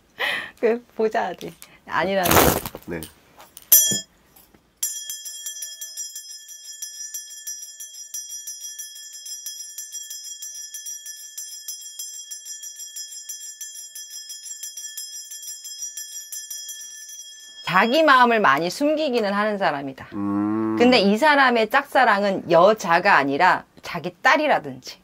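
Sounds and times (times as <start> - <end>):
small bells jingling: 3.7 - 19.3.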